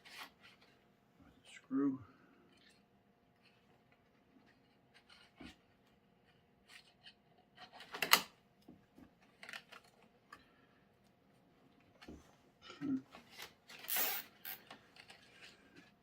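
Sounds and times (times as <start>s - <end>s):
zip tie rasp: 13.8s - 14.6s.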